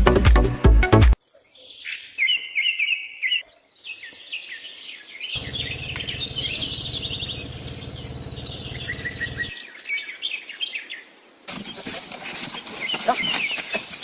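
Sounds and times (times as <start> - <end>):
small birds chirping: 1.3 - 14.0
steady low hum: 5.4 - 9.5.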